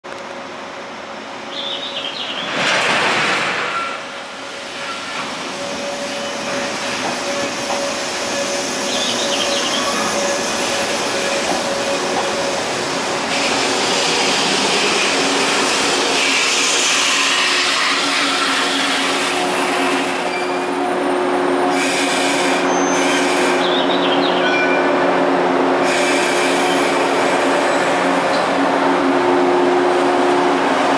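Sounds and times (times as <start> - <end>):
wheels squealing on rails: 3.6 - 25.0, 25.8 - 28.5
train motors humming: 4.0 - 24.1, 24.9 - 30.9.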